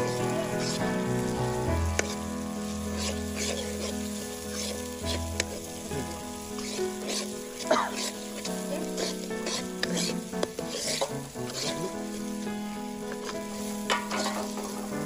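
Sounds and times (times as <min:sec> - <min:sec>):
food sizzling in a pan: 0:00.0 - 0:15.0
metal spoon stirring and scraping: 0:01.9 - 0:05.8, 0:06.4 - 0:12.4, 0:13.1 - 0:15.0.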